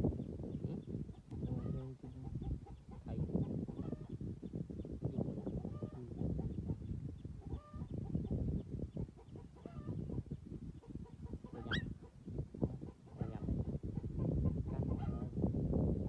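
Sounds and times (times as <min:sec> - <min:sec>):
short animal calls: 0:11.6 - 0:11.9.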